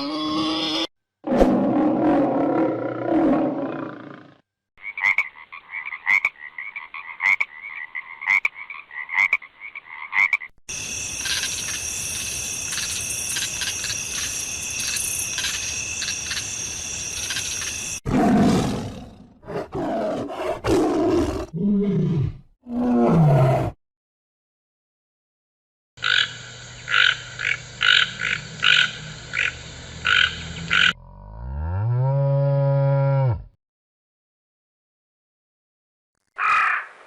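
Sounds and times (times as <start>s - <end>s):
deep animal roars: 1.2s - 4.4s, 18.1s - 23.8s
high insect chorus: 10.7s - 18.0s, 26.0s - 30.9s.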